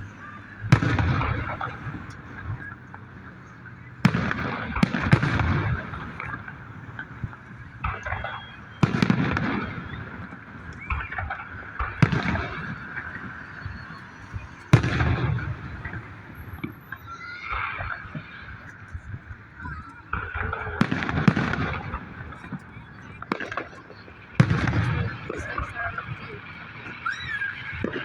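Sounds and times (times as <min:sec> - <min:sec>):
fireworks booming: 0:00.0 - 0:28.0.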